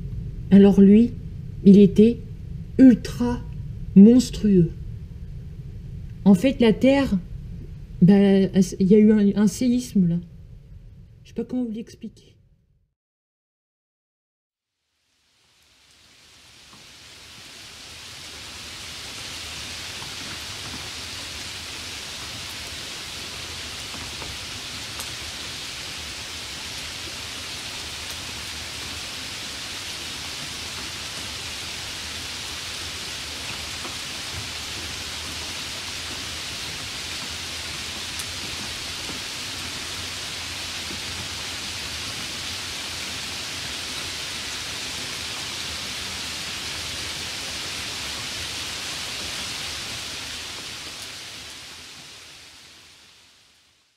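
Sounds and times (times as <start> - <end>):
heavy rain falling: 14.9 - 53.9.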